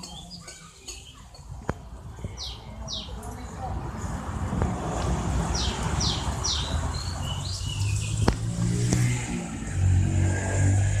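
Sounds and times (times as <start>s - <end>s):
bird chirping: 5.5s - 8.5s.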